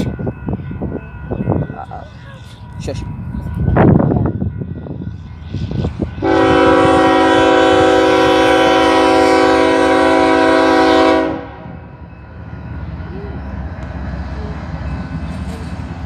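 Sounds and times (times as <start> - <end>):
train rumbling past: 0.0 - 16.0
locomotive air horn blast: 6.2 - 11.7.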